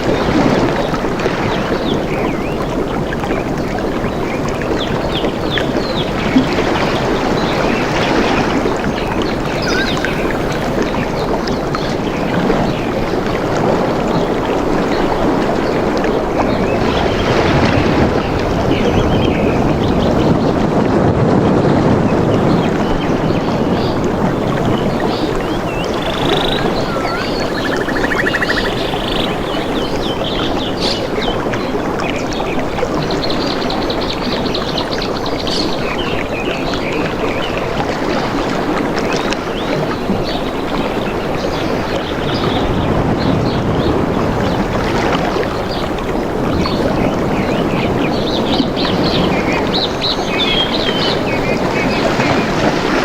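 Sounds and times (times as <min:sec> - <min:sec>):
running water rushing: 0:00.0 - 0:53.0
birds chirping: 0:04.8 - 0:17.3, 0:22.2 - 0:32.6
bird trilling: 0:09.5 - 0:10.8, 0:24.9 - 0:31.2.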